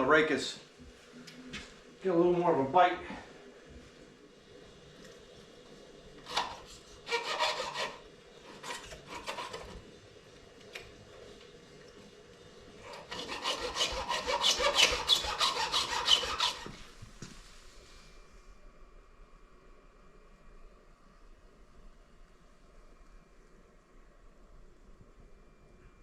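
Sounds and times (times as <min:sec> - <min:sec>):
file stroking on chainsaw chain: 0:07.1 - 0:09.7, 0:12.9 - 0:16.8.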